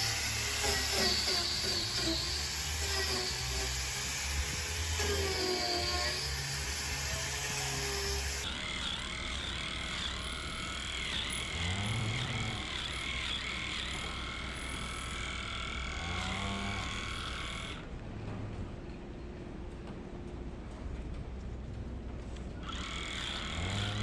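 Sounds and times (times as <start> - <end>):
machine high-pitched whine: 0.0 - 17.9.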